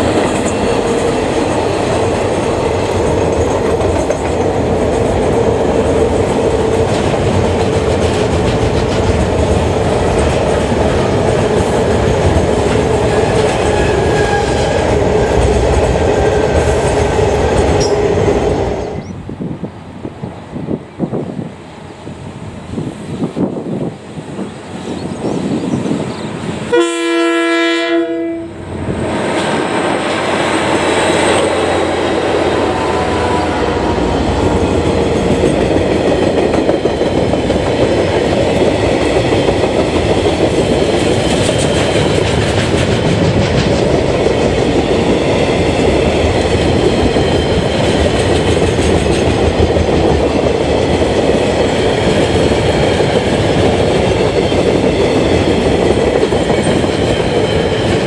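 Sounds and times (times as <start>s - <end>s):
train rumbling and clattering: 0.0s - 58.0s
train horn blast: 13.5s - 14.8s, 26.7s - 28.7s.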